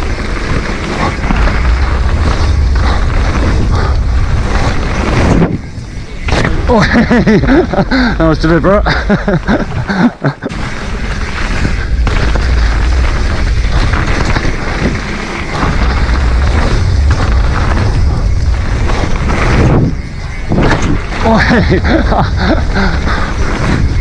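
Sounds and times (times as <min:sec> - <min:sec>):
wind buffeting microphone: 0:00.0 - 0:10.0, 0:10.8 - 0:24.0
bike frame rattle: 0:00.0 - 0:24.0
bike tyres roaring on dirt: 0:00.0 - 0:24.0.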